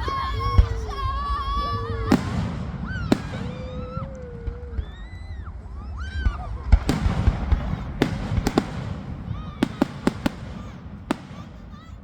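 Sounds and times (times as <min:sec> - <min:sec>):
distant fireworks rumbling: 0:00.0 - 0:12.0
sharp firework cracks: 0:02.1 - 0:04.7, 0:06.8 - 0:12.0.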